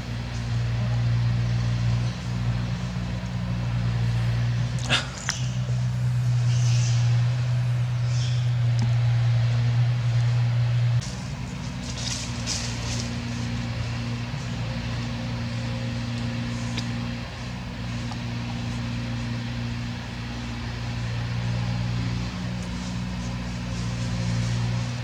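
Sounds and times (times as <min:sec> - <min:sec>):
low engine hum: 0:00.0 - 0:25.0.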